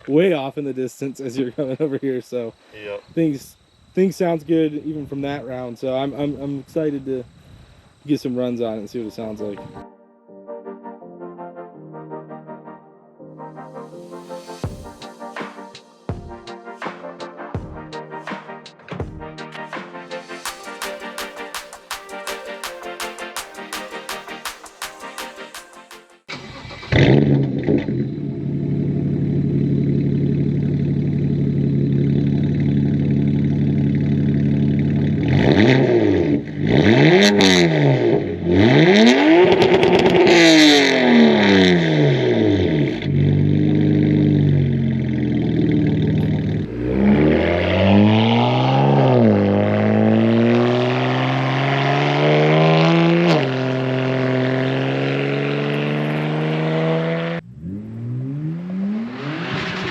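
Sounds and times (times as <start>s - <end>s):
car engine revving: 26.4s - 59.9s.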